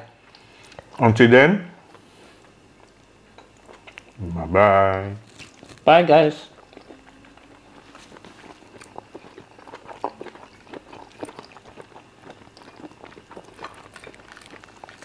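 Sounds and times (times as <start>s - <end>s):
wet chewing: 1.9s - 4.2s, 5.2s - 5.9s, 6.5s - 15.0s.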